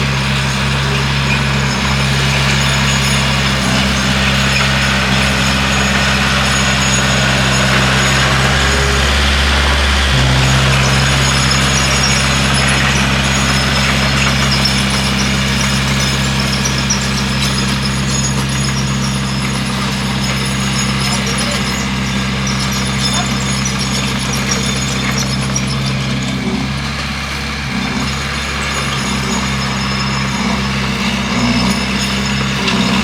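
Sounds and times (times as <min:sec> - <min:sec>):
bulldozer diesel engine: 0:00.0 - 0:33.0
thin high squeal: 0:02.6 - 0:19.2.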